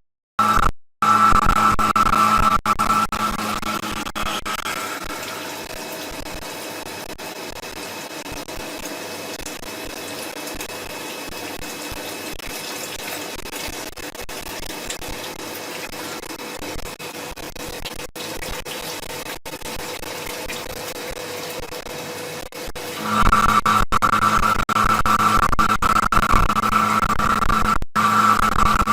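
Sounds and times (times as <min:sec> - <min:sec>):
faint machine whine: 0:00.4 - 0:28.9
coolant spraying: 0:04.5 - 0:23.0.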